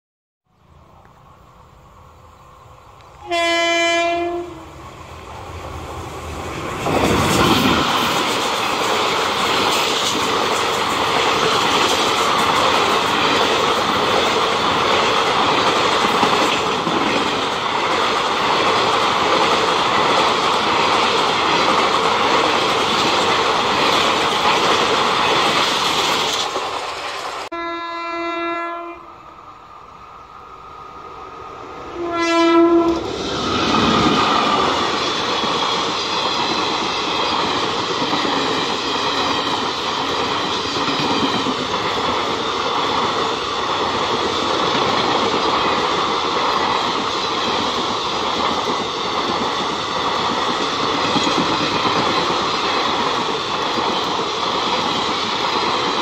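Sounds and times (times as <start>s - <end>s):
train horn blasts: 3.2s - 4.8s, 27.5s - 29.2s, 31.9s - 33.1s
train wheels rushing and clattering: 4.8s - 27.5s, 32.9s - 56.0s.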